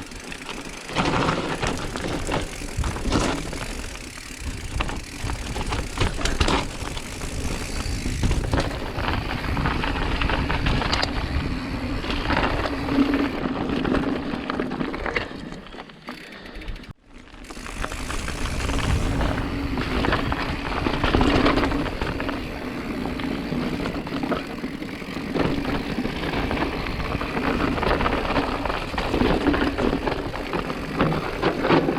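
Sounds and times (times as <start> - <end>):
mountain bike tyre noise: 0.0 - 31.9
bike parts clattering: 0.1 - 8.9.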